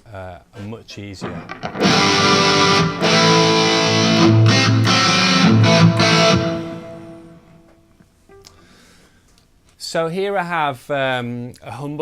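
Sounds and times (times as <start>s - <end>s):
overdriven electric guitar chords: 1.2s - 7.8s.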